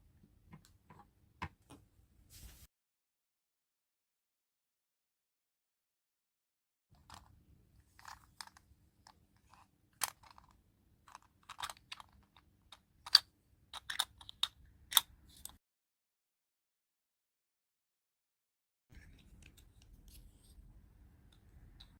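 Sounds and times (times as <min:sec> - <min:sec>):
toy packaging crinkling: 0:08.0 - 0:08.6, 0:09.5 - 0:12.4.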